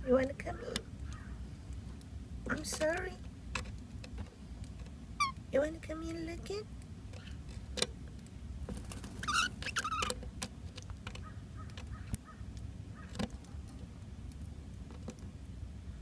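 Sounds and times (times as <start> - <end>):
steady low hum: 0.0 - 16.0
bird calls: 0.5 - 1.5, 9.1 - 10.2, 11.2 - 13.3.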